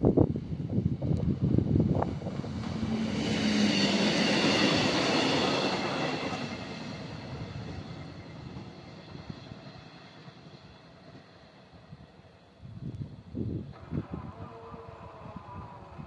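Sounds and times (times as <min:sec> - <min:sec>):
train on the rails: 0:00.0 - 0:16.0.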